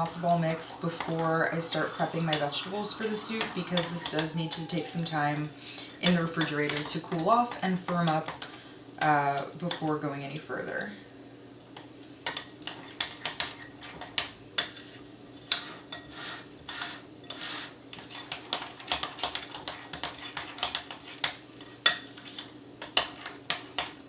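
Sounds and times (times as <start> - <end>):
utensil scraping against a bowl: 14.8 - 21.2.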